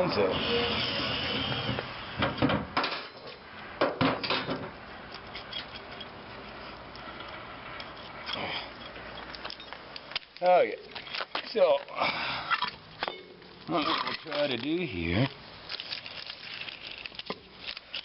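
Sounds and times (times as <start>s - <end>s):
metal tools clanking: 12.5s - 14.6s.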